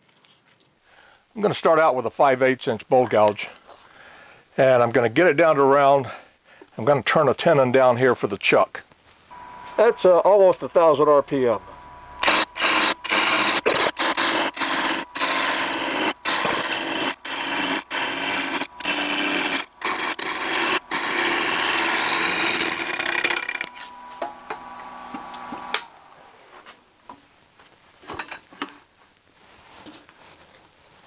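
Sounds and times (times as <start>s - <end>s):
lathe gouge shaving wood: 12.2s - 25.6s.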